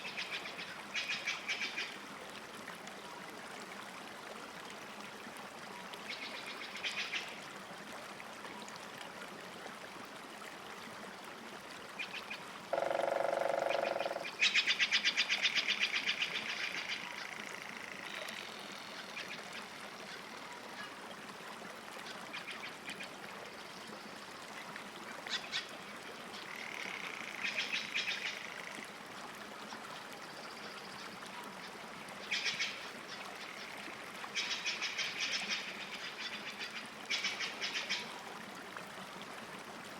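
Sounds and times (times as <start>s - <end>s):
low drawn-out bird call: 12.7s - 14.7s.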